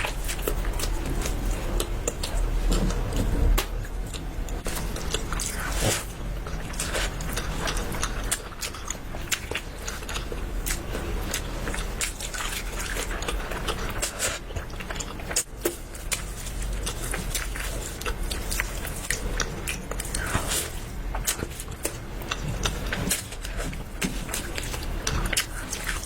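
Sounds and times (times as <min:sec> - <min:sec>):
crunchy chewing of food: 0:00.0 - 0:26.0.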